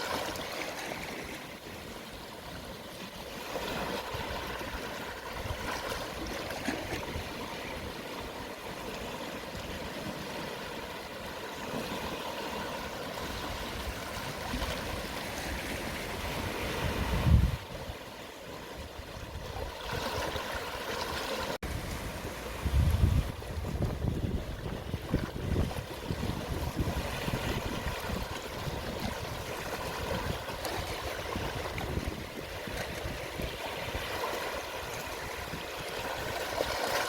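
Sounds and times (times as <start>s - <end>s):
sea waves washing over shore: 0.0s - 37.0s
wind buffeting microphone: 13.2s - 18.0s, 21.6s - 36.8s.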